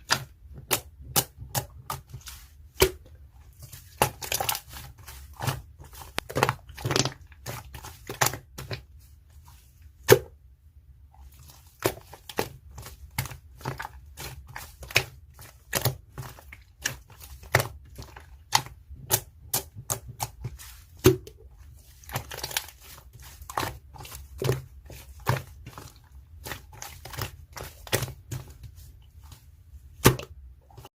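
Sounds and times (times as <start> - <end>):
crunching and crackling clicks: 6.0 - 7.3.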